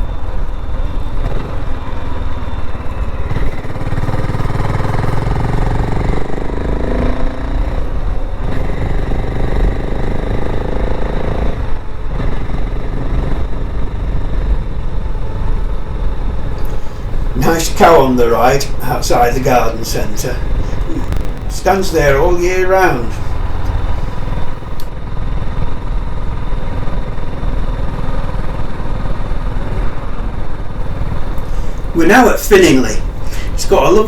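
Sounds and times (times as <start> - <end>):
motorcycle engine accelerating: 3.0 - 11.8, 20.3 - 21.6, 22.2 - 24.9.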